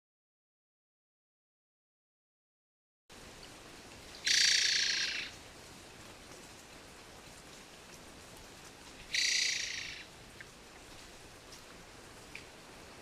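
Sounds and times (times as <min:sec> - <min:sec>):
faint steady hiss: 0:03.1 - 0:13.0
bird rattling call: 0:04.2 - 0:05.3, 0:09.1 - 0:10.1.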